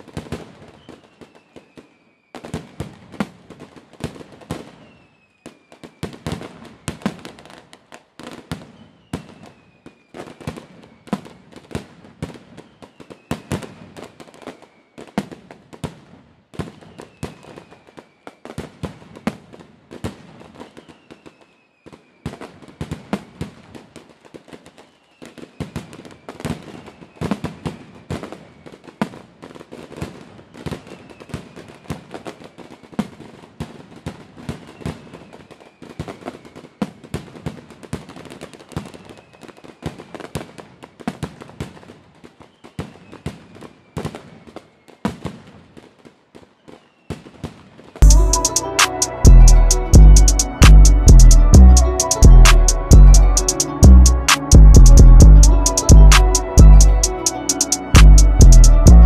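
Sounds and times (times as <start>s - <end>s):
falling firework whistle: 0.0s - 3.3s, 4.1s - 7.5s, 8.3s - 15.4s, 16.6s - 19.0s, 20.1s - 23.6s, 24.5s - 29.3s, 30.0s - 37.3s, 38.0s - 40.6s, 41.7s - 47.6s
firework bangs and crackling: 0.0s - 48.0s.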